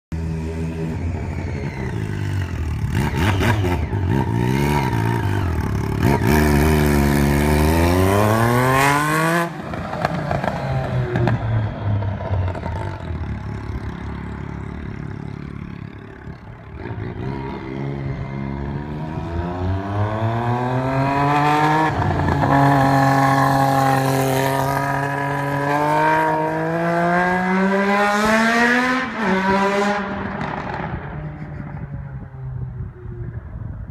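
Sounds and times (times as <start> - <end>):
motorcycle engine revving loudly: 0.8 - 11.7, 16.8 - 31.2.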